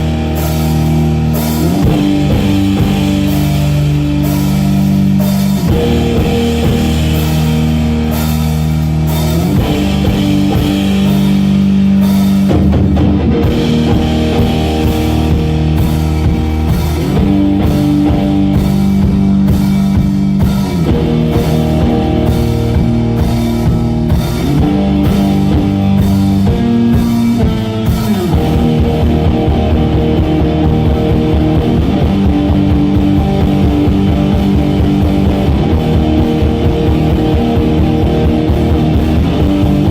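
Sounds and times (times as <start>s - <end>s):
distorted electric guitar chords: 0.0s - 39.9s
rock drum kit: 0.0s - 39.9s.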